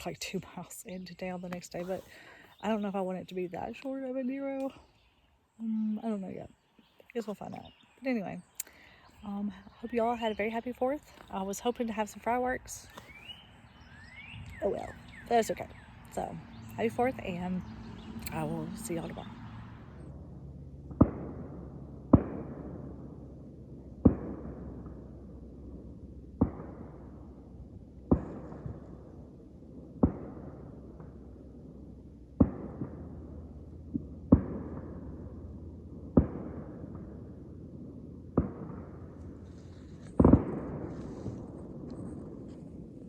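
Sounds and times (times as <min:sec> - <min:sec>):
distant fireworks booming: 0:20.9 - 0:43.0.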